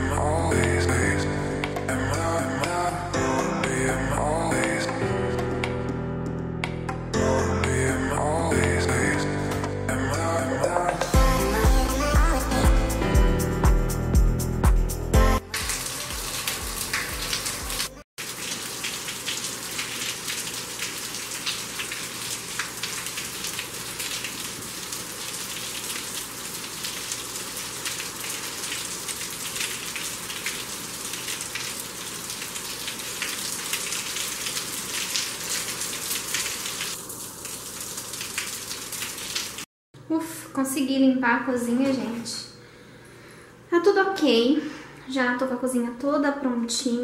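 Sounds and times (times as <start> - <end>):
steady rain falling: 15.6 - 39.7.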